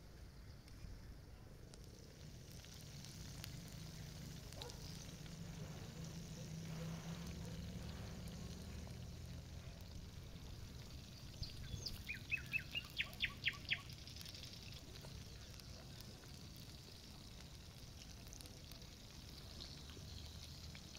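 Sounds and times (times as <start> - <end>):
low background rumble: 0.0 - 20.9
songbird singing: 3.8 - 16.2.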